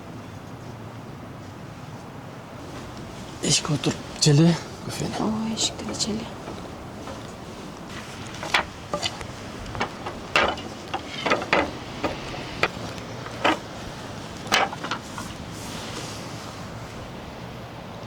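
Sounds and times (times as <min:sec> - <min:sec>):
camping gear clicking and knocking: 0:02.6 - 0:17.0
steady rushing background: 0:02.6 - 0:17.2.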